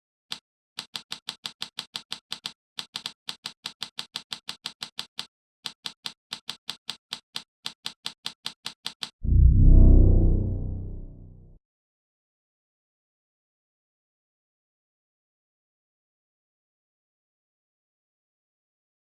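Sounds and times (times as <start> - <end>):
rapid typing clicks: 0.8 - 9.2.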